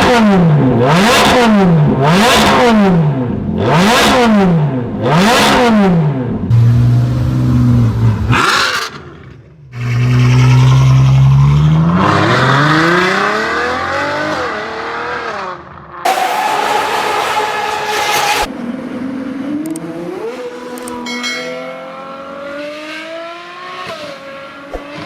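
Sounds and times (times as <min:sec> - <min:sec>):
car engine revving: 0:00.0 - 0:21.0
second engine: 0:00.2 - 0:15.1, 0:16.1 - 0:18.7.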